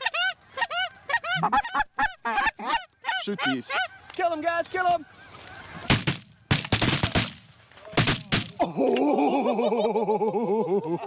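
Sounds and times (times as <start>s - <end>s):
geese honking: 0.0s - 6.6s
shotgun blasts: 5.9s - 8.6s.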